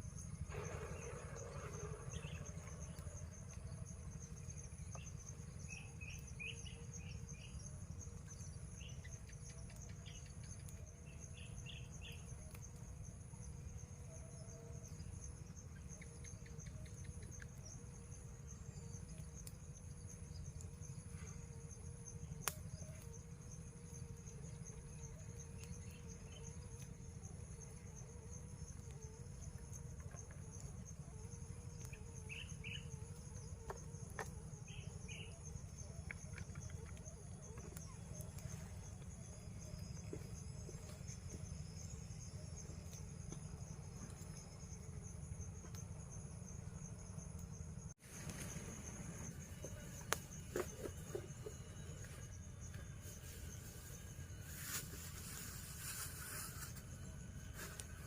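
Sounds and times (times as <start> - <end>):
low steady rumble: 0.0 - 9.1
insects chirring: 0.0 - 58.0.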